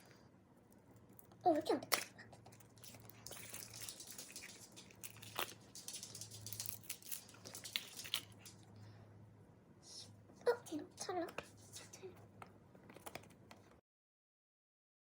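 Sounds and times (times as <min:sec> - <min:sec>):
plastic packaging crinkling and tearing: 0:02.1 - 0:08.6.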